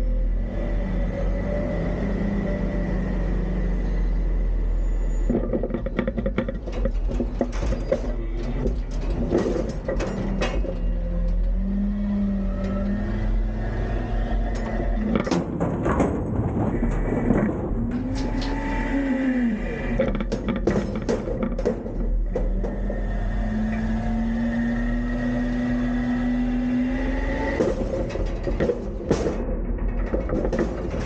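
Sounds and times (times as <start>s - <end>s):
hydraulics whining: 0.0s - 31.0s
recyclables clattering into hopper: 14.8s - 18.3s.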